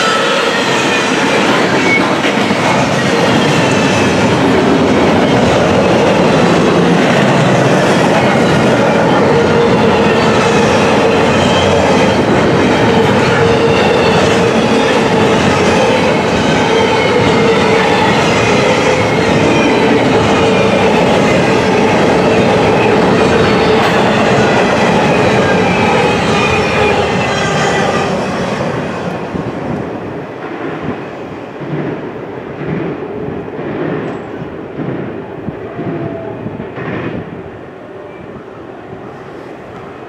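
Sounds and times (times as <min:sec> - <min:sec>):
high ringing from train wheels: 0:00.0 - 0:29.5
train cars rumbling past: 0:00.0 - 0:40.0.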